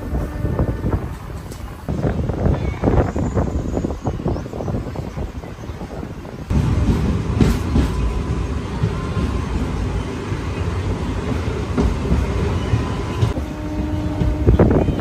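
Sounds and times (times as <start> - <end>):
train wheels rumbling on rails: 0.0 - 15.0
clacks over rail joints: 6.8 - 9.8, 10.6 - 15.0.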